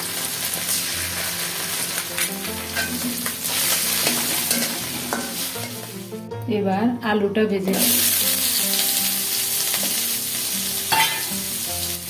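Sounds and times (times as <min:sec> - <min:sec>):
fish frying in oil: 0:00.0 - 0:05.6, 0:07.7 - 0:12.0
metal spatula scraping pan: 0:02.6 - 0:06.0.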